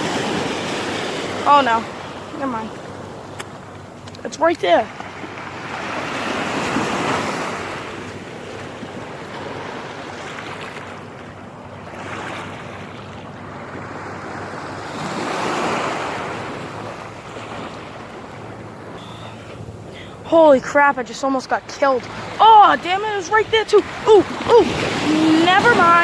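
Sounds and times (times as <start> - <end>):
ocean waves washing on shore: 0.0 - 26.0.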